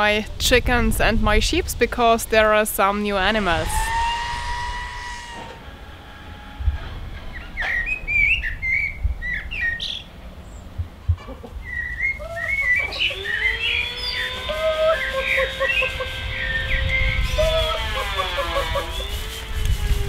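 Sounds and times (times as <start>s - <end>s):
birds chirping: 2.8s - 19.3s
steady held tone: 3.0s - 8.1s, 12.8s - 19.8s.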